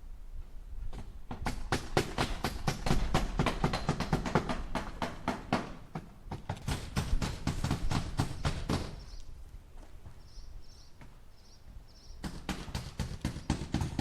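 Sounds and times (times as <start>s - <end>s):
hammer driving nails into wood: 1.0s - 9.0s, 12.2s - 14.0s.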